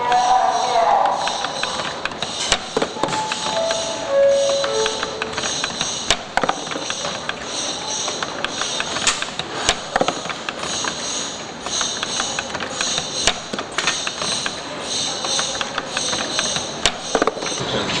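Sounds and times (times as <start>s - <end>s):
spring-forming machine clatter: 1.2s - 4.0s, 4.6s - 18.0s
high hiss: 3.0s - 6.2s.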